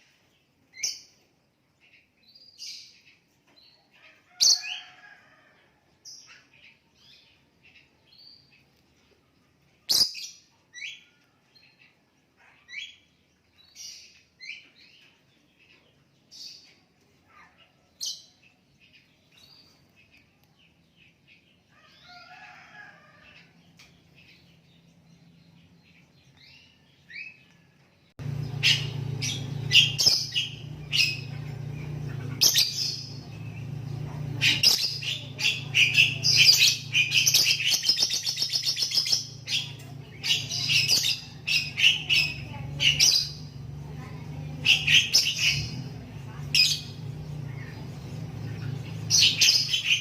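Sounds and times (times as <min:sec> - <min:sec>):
bird chirping and trilling: 0:09.9 - 0:18.4, 0:28.2 - 0:50.0
low hum: 0:28.2 - 0:49.9.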